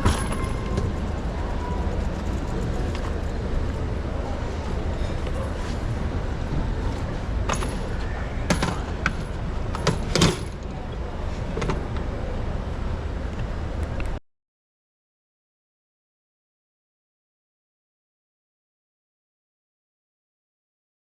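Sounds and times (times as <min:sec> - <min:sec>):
street rumble from moving bicycle: 0:00.0 - 0:14.2.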